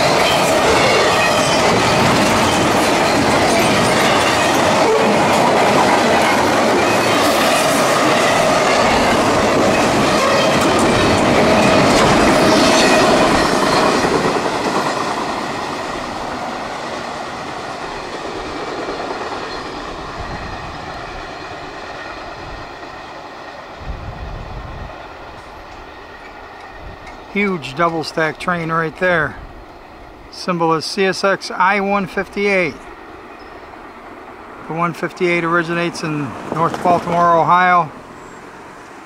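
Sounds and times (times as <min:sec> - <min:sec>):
freight train cars rolling past: 0:00.0 - 0:39.0.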